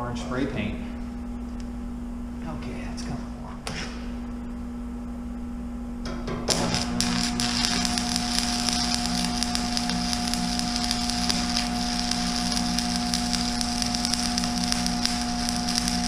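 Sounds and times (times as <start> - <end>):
steady hum: 0.0 - 16.0
welding arc crackling sizzle: 6.3 - 16.0.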